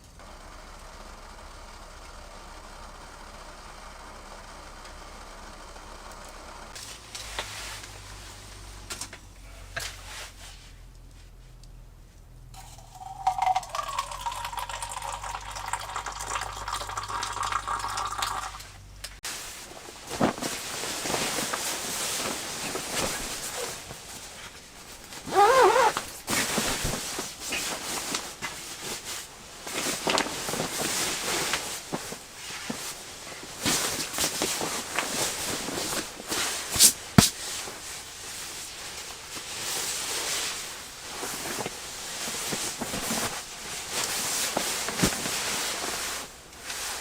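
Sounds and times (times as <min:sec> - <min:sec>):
water pouring into container: 0:12.6 - 0:18.7
knocks and handling sounds: 0:19.3 - 0:47.0.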